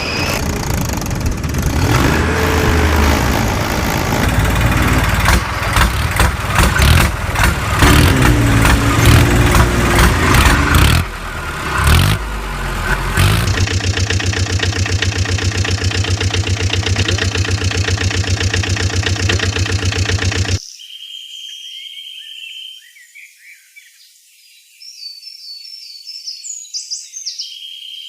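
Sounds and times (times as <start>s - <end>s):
small engine clattering and idling: 0.0s - 20.6s.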